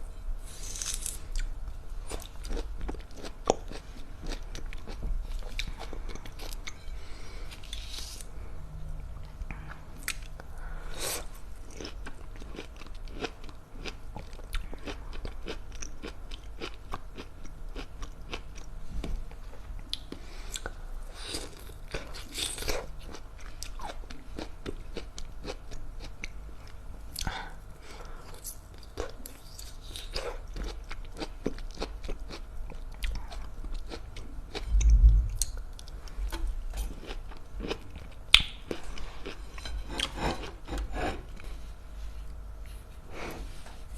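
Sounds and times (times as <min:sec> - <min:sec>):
person chewing tangerine: 0:00.5 - 0:06.9, 0:09.0 - 0:10.5, 0:11.1 - 0:41.6
low thump: 0:34.8 - 0:35.4.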